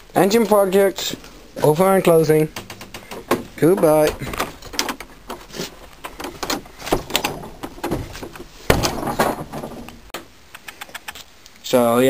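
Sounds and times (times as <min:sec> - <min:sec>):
objects clicking and rattling: 0:02.5 - 0:10.0.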